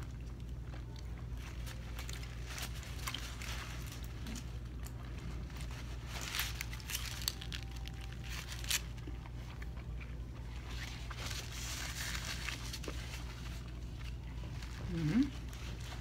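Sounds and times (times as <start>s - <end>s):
steady low hum: 0.0s - 16.0s
wet chewing: 6.5s - 16.0s
paper towel rustling: 10.7s - 16.0s.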